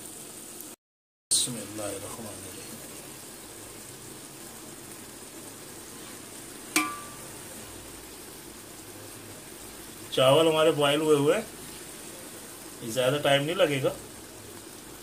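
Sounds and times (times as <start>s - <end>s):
vegetables sizzling in a pot: 0.0s - 15.0s
metal utensil clinking on pot: 6.8s - 7.2s.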